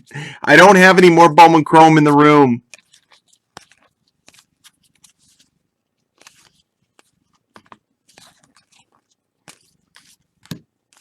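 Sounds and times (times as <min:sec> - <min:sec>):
cards and wrappers rustling: 0:01.7 - 0:11.0.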